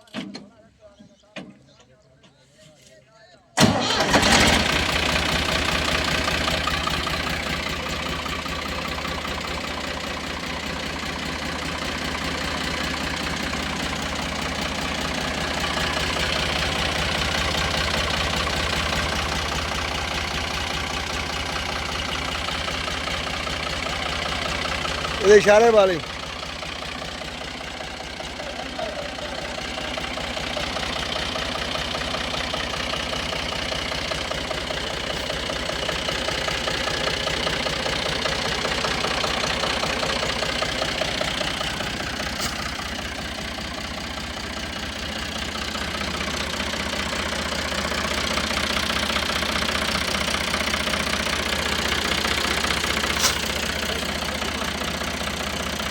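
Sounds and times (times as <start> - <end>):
tractor diesel engine running: 3.6 - 55.9.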